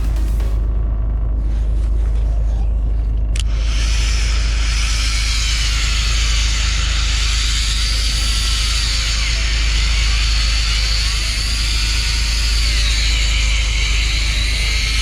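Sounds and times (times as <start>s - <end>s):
click: 3.3s - 3.5s.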